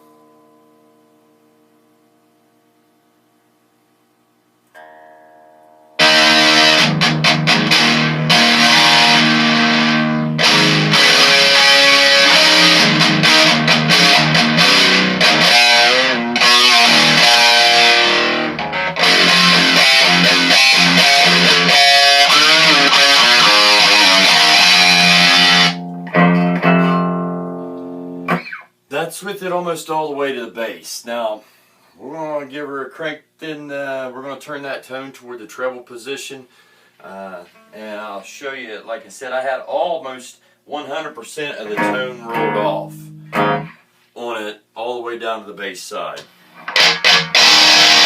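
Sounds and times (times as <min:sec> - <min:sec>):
distorted electric guitar riff: 0:04.8 - 0:28.7, 0:41.6 - 0:43.8, 0:46.5 - 0:48.0.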